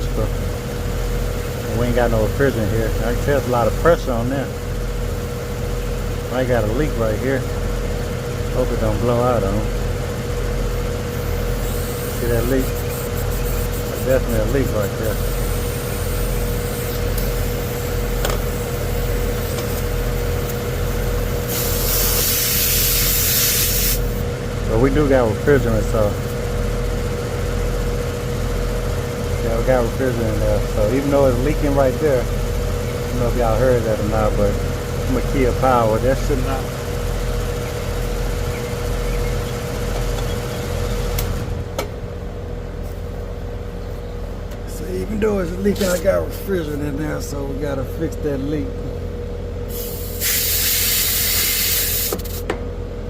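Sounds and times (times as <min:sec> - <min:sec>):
fan motor humming and whining: 0:00.0 - 0:53.0
refrigerant hissing: 0:11.1 - 0:19.9, 0:21.4 - 0:24.2, 0:49.7 - 0:52.4
airy hiss: 0:21.5 - 0:24.1.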